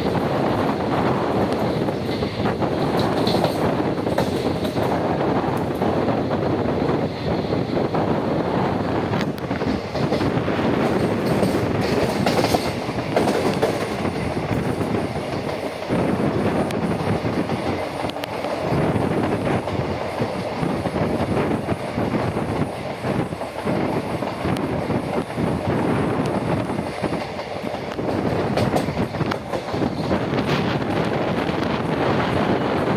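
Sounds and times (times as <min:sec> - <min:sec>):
wheels clacking over rail joints: 0:00.0 - 0:05.0, 0:09.2 - 0:21.0, 0:26.2 - 0:31.1
train coaches rumbling: 0:00.0 - 0:32.9.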